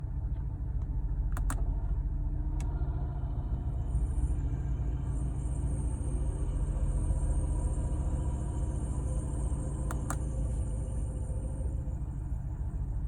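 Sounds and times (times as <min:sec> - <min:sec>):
car engine idling: 0:00.2 - 0:13.0
sharp clicks: 0:01.3 - 0:01.6.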